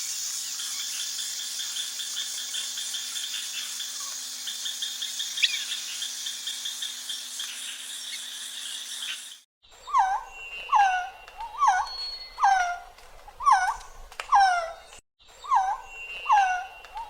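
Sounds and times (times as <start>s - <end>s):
bird rapid dry rattling call: 0.0s - 9.4s.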